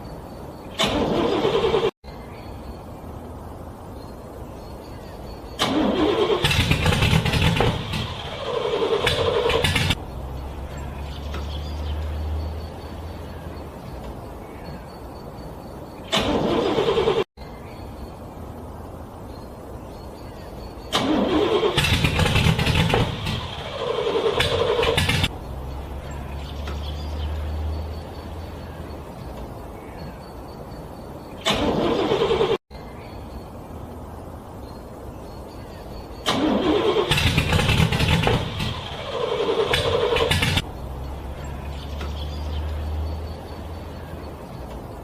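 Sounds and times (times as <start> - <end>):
car engine cranking: 0.7 - 2.0, 5.5 - 14.0, 16.0 - 17.3, 20.8 - 29.4, 31.4 - 32.6, 36.2 - 44.9
low engine-like drone: 35.2 - 45.0.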